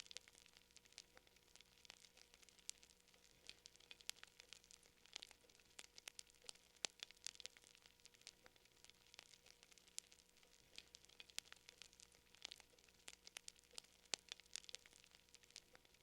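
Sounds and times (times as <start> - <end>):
fire crackling: 0.0 - 16.0.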